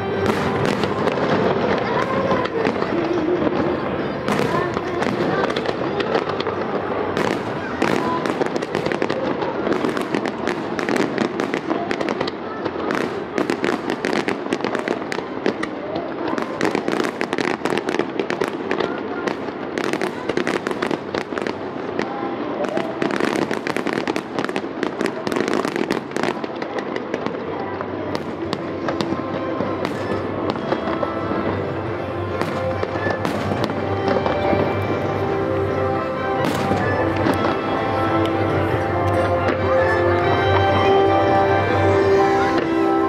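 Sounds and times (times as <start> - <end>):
fireworks bursting and crackling: 0.0 - 43.0.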